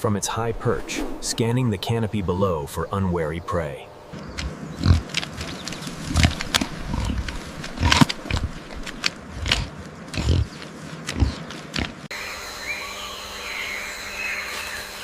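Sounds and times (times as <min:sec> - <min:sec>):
pig grunting: 0:04.7 - 0:05.2, 0:06.1 - 0:12.1.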